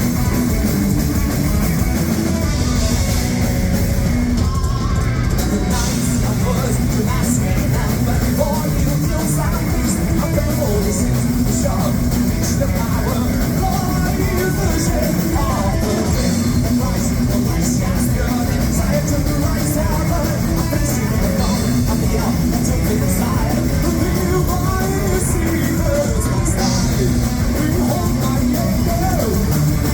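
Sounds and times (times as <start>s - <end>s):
distorted electric guitars: 0.0s - 29.9s
drums with crashing cymbals: 0.0s - 29.9s
person singing: 4.4s - 29.9s.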